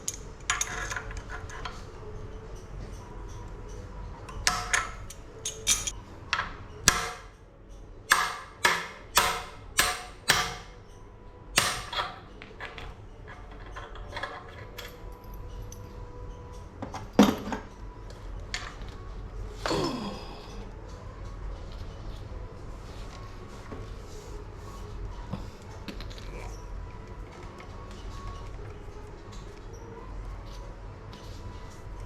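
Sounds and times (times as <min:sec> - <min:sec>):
hammer striking metal: 0:04.4 - 0:07.4, 0:08.1 - 0:10.8, 0:11.5 - 0:12.3.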